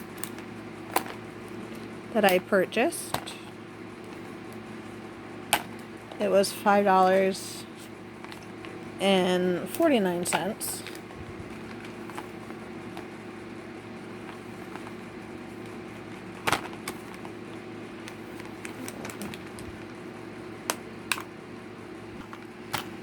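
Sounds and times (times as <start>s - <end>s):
steady hum: 0.0s - 23.0s
plastic package clicks: 18.4s - 19.9s.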